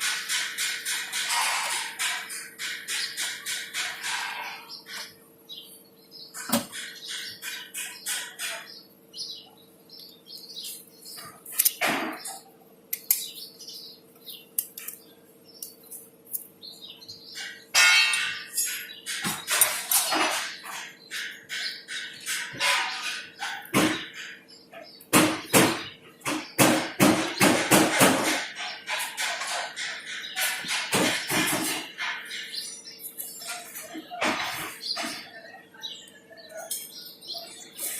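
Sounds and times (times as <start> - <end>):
small birds chirping: 0.0 - 37.9
sharp knocks: 6.4 - 8.8, 17.4 - 24.4, 25.1 - 32.4.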